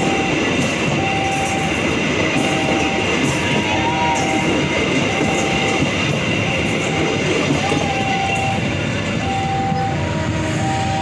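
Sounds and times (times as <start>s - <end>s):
train wheels rushing on rail: 0.0s - 11.0s.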